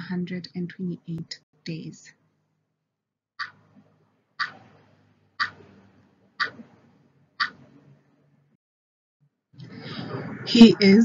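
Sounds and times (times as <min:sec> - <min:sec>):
clock ticking: 0:05.4 - 0:05.6.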